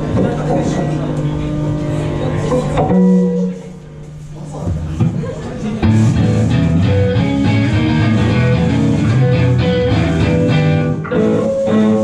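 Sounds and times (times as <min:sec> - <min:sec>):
guitar playing chords: 0:01.7 - 0:03.6, 0:05.8 - 0:12.0.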